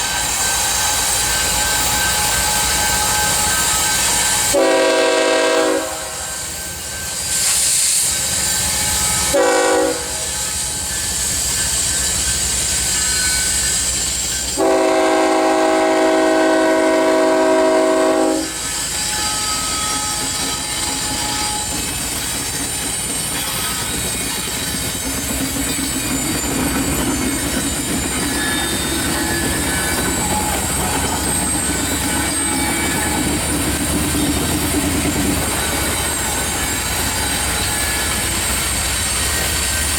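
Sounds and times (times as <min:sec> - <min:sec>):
wheel squeal: 0:00.0 - 0:04.6, 0:06.2 - 0:14.6, 0:18.3 - 0:39.9
freight train rumbling past: 0:00.0 - 0:39.9
locomotive air horn: 0:04.2 - 0:06.4, 0:09.1 - 0:10.4, 0:14.6 - 0:21.8.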